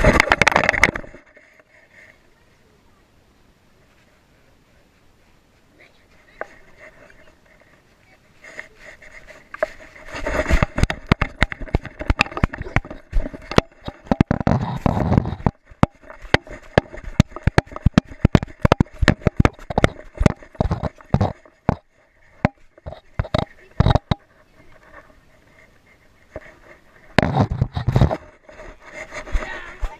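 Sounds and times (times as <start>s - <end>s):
knocks and rattles of camera: 0.0s - 1.7s, 8.4s - 29.9s
rubbing scraping noise: 0.0s - 2.2s, 6.1s - 29.9s.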